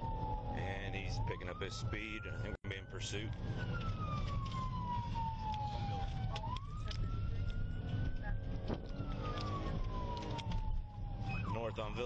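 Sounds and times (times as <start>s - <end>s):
police siren wailing: 0.0s - 12.0s
car driving rumble: 2.9s - 12.0s.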